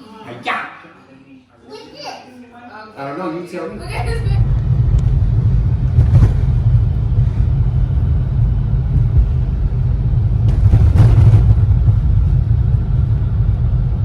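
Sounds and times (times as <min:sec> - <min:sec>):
loud low rumble: 0:03.7 - 0:14.0.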